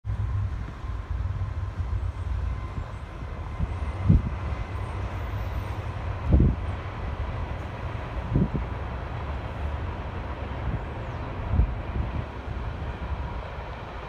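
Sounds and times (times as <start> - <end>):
diesel locomotive rumble: 0.0 - 14.0.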